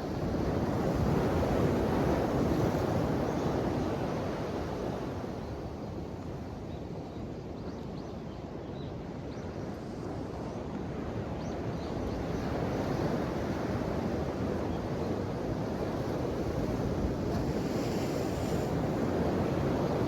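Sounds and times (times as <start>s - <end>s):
soft wash of surf: 0.0s - 6.5s, 11.9s - 20.0s.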